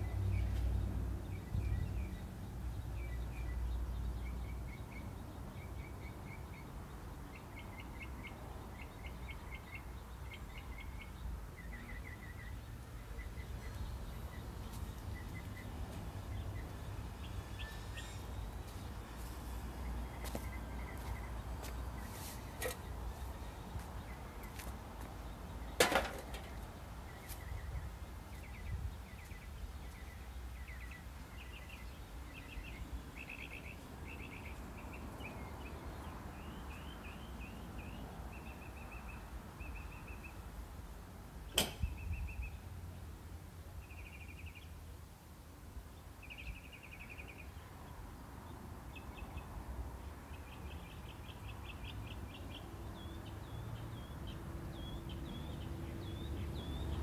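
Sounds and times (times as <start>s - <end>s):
birds chirping: 0.0s - 40.5s, 43.8s - 44.8s, 46.0s - 57.0s
sharp knocks: 41.5s - 41.9s.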